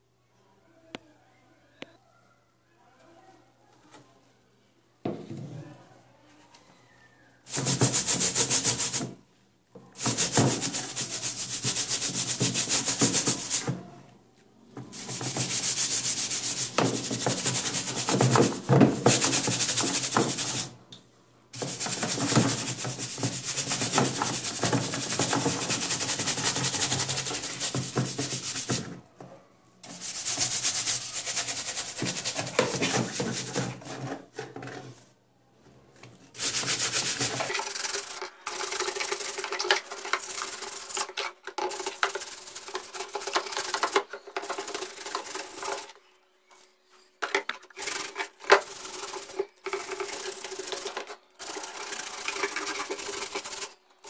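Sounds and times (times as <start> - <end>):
sanding metal grille: 7.5 - 9.1, 10.0 - 13.6, 15.0 - 20.7, 21.6 - 28.8, 29.9 - 33.5, 36.4 - 41.1, 47.8 - 53.7.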